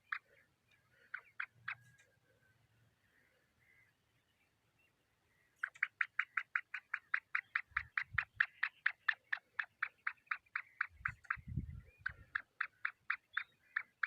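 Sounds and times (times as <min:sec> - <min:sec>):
francolin calling: 0:00.0 - 0:02.0, 0:05.5 - 0:14.0.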